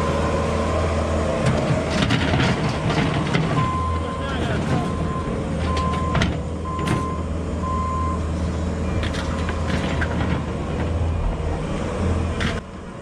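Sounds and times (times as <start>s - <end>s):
diesel engine drone: 0.0s - 13.0s
backup alarm beeping: 4.9s - 9.1s.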